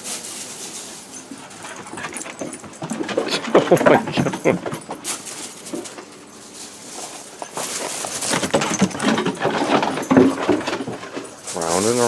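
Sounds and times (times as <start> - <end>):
scuffling: 0.0 - 12.0
collar tags jingling: 0.2 - 12.0
dog panting: 1.4 - 5.0.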